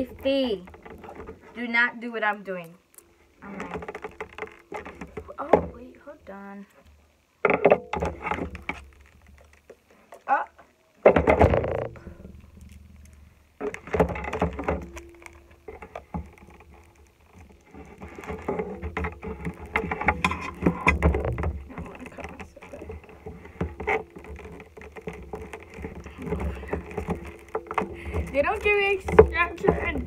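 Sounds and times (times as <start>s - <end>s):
cardboard box rustling and scraping: 13.6s - 30.0s.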